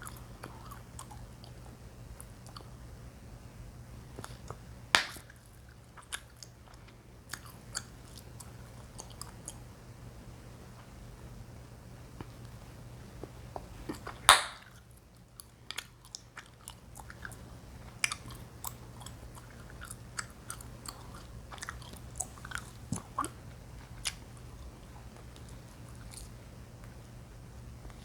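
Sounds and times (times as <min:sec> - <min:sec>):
gum chewing and popping: 0:00.0 - 0:02.8, 0:04.2 - 0:09.7, 0:13.2 - 0:27.0.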